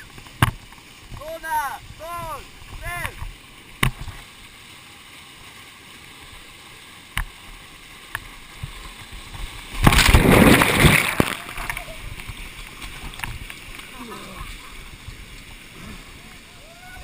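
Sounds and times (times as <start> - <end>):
faint water noise: 0.0 - 17.0
bodies splashing into water: 8.6 - 17.0.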